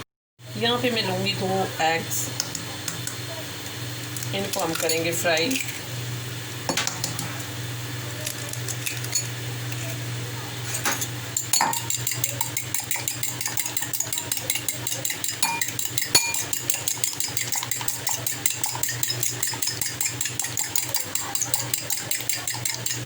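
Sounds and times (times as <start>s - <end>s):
fork beating eggs in a bowl: 10.6s - 23.0s.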